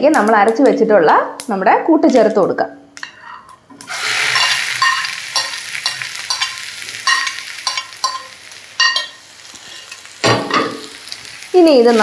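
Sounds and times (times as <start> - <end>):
paste sizzling in hot oil: 3.8 - 12.0.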